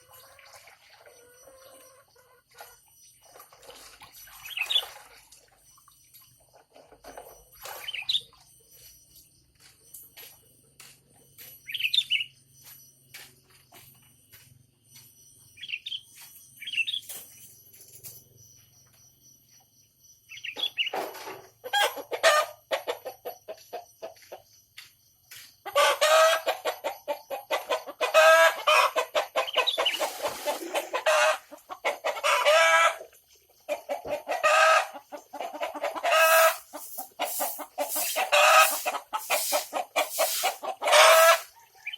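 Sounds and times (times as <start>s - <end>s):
high bird chirps: 5.7s - 10.3s, 11.4s - 13.8s, 14.9s - 21.0s.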